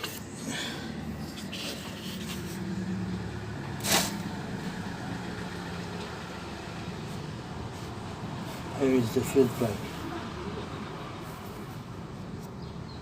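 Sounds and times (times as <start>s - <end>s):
short hiss: 3.8s - 4.2s.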